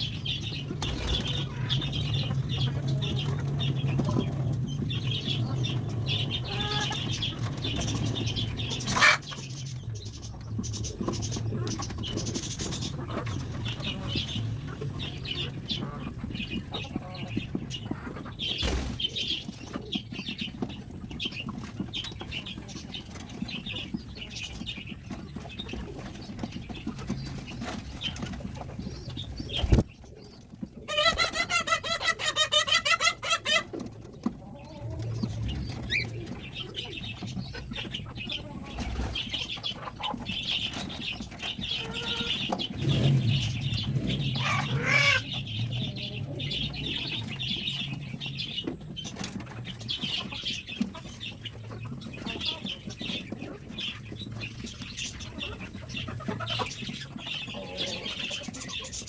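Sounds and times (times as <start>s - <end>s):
rapidly pulsing bird call: 0.0s - 17.4s, 34.6s - 51.4s
pigeons and chickens clucking: 0.0s - 59.0s
wing flaps: 0.8s - 1.5s, 29.4s - 29.9s
low rumble: 42.6s - 48.6s.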